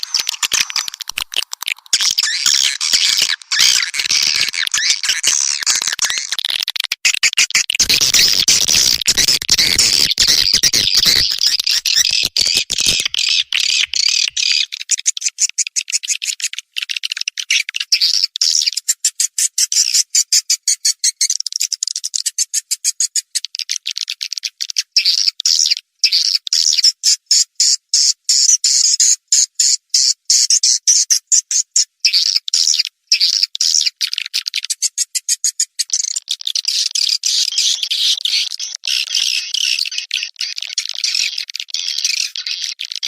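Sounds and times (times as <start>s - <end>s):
swiftlets chirping and clicking: 0.0s - 17.0s.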